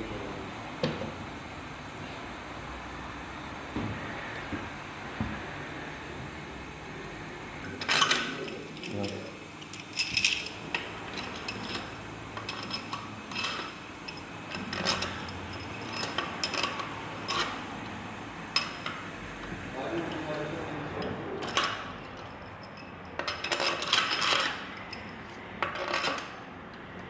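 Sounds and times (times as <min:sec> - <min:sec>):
tools and metal parts clinking: 0:07.7 - 0:17.6, 0:18.5 - 0:19.0, 0:20.0 - 0:26.4.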